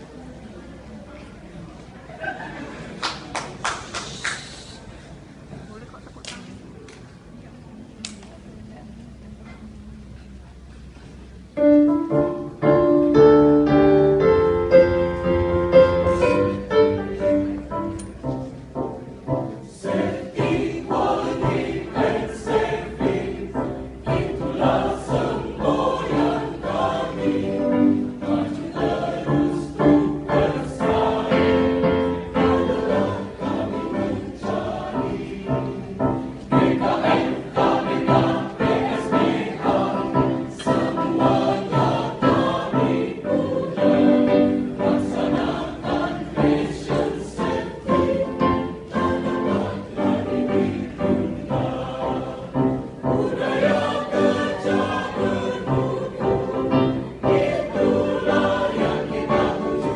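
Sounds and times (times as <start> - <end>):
choir singing: 18.8 - 59.9.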